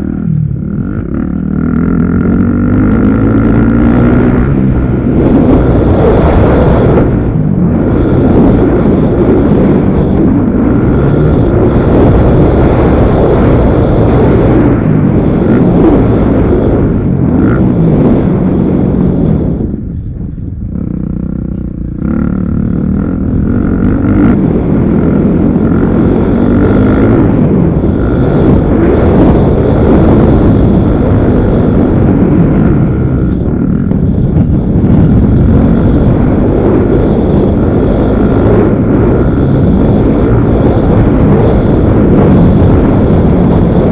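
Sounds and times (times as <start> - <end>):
motorcycle engines revving: 0.0 - 43.9.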